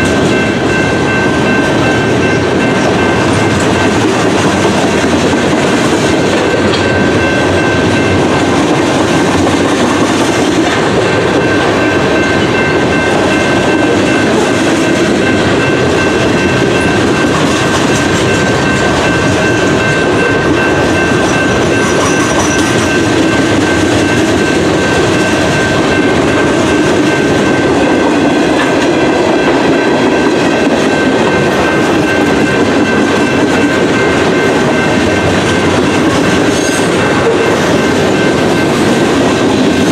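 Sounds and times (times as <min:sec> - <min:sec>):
high-pitched wheel ringing: 0:00.0 - 0:39.9
train wheels rumbling on rails: 0:00.0 - 0:39.9
wheels clickety-clack over track: 0:00.0 - 0:39.9.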